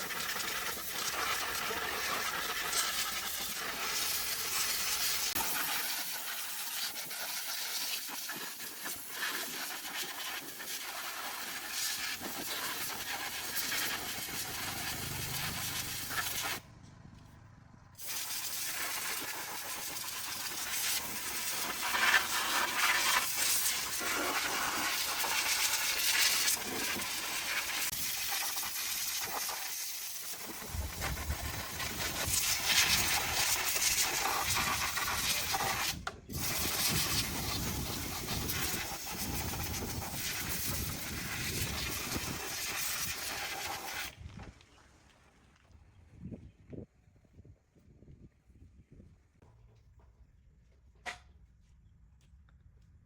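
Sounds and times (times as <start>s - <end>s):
low rumble: 15.0s - 18.0s.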